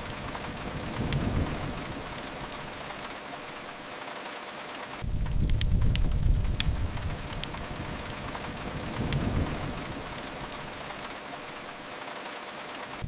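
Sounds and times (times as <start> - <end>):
faint crackles: 0.0 - 13.0
steady rain hiss: 0.0 - 13.0
low rumble: 5.0 - 10.2.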